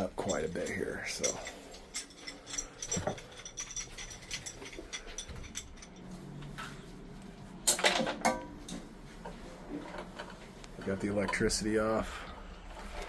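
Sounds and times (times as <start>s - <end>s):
metal clatter: 0.0s - 6.8s, 7.6s - 8.8s
clinks of plumbing parts and tools: 0.0s - 6.9s, 7.6s - 11.6s.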